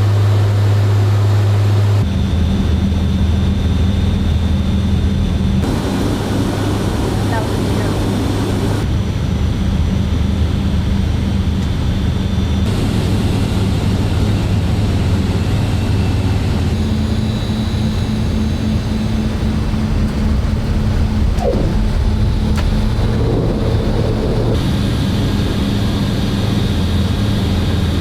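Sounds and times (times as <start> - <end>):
turboprop engines droning: 1.7 - 28.0.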